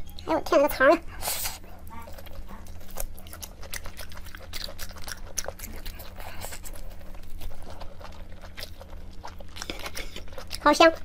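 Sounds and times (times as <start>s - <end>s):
steady low hum: 0.0s - 11.0s
person chewing: 1.2s - 11.0s.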